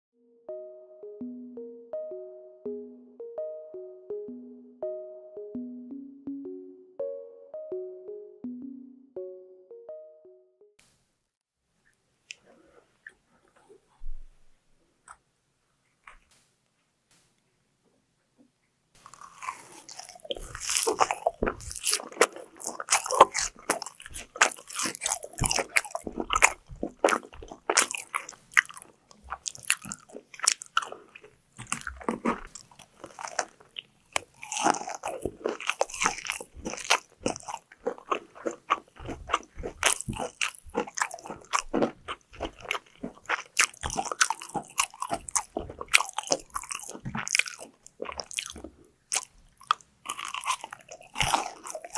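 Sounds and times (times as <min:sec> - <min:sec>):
chewing crunchy fried food: 0:19.0 - 0:51.9.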